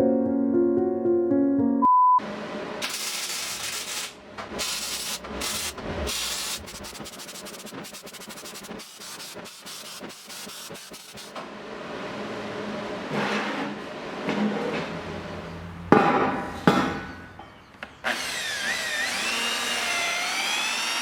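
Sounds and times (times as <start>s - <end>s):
rubbing and scraping strokes: 3.4s - 11.3s.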